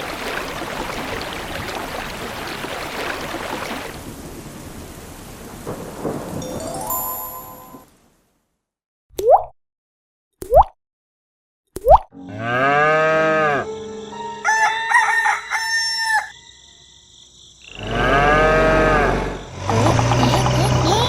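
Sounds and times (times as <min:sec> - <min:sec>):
cow mooing: 0:12.3 - 0:13.7, 0:17.8 - 0:20.2
rooster crowing: 0:13.3 - 0:16.7.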